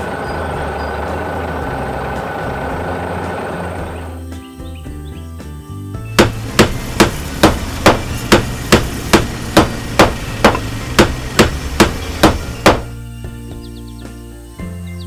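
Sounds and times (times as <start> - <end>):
hammer blows: 6.2 - 13.0.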